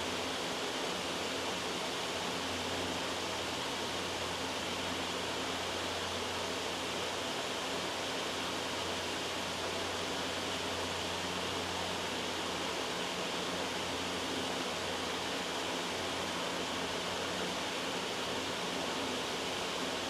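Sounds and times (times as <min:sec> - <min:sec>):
white noise hiss: 0:00.0 - 0:20.0.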